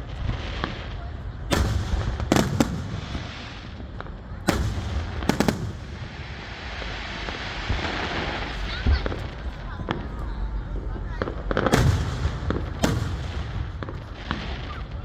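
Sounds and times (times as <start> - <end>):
fireworks bangs with echo: 0.0 - 15.0.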